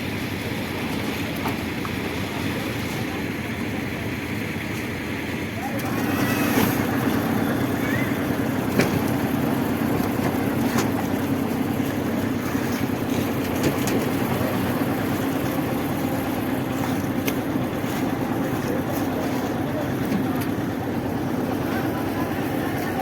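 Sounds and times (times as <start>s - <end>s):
concrete mixer droning: 0.0s - 23.0s.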